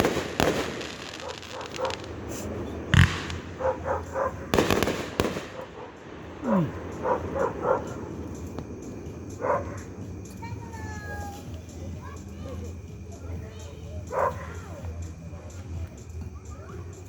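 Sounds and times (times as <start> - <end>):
fireworks bangs: 0.0 - 9.1
dog barking: 1.2 - 2.1, 3.4 - 4.5, 5.5 - 8.2, 9.4 - 9.9, 14.1 - 14.6.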